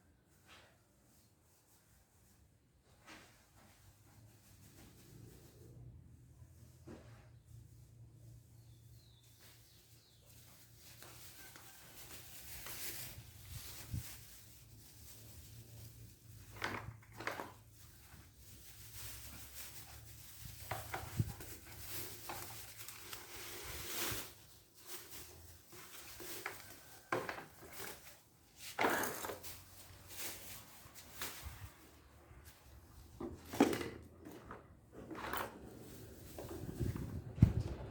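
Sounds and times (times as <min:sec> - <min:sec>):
objects being handled: 0:09.3 - 0:37.9.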